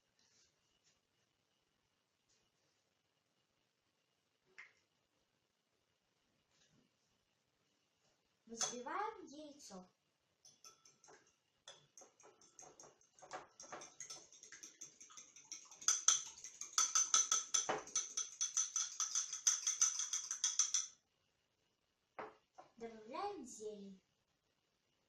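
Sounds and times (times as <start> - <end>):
utensil clinking against bowl: 10.5 - 21.0.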